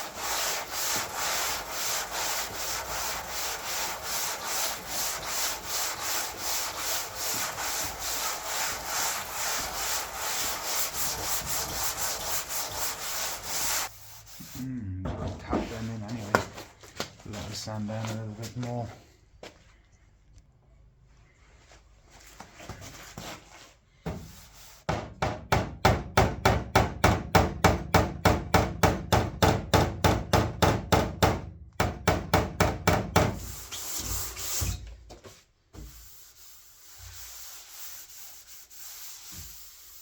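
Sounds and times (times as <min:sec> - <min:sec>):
sanding block rasping on metal: 0:00.0 - 0:14.6, 0:33.2 - 0:34.8, 0:35.8 - 0:40.0.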